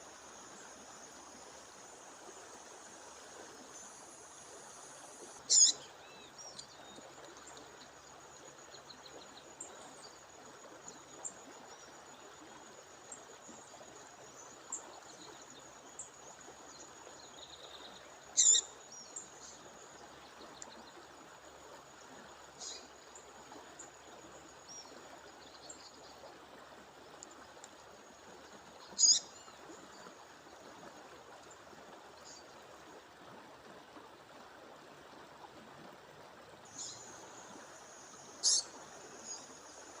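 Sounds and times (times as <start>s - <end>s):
songbird call notes: 3.5s - 10.2s, 16.7s - 21.0s, 22.6s - 23.0s, 28.7s - 30.1s, 36.7s - 40.0s.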